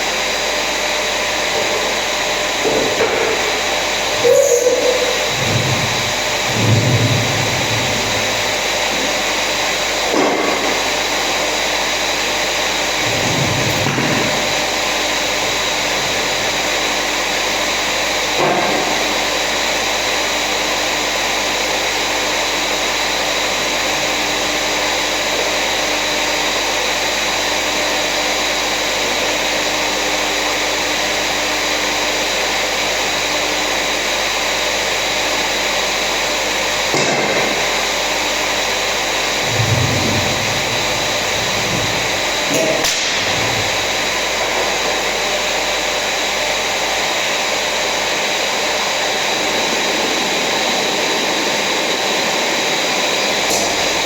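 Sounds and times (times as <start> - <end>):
machine whirring: 0.0 - 20.6, 36.5 - 54.0.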